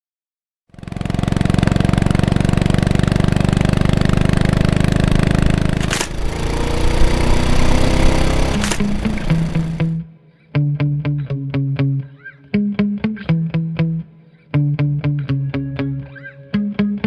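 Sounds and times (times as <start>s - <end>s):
motorcycle engine idling: 0.8s - 10.0s.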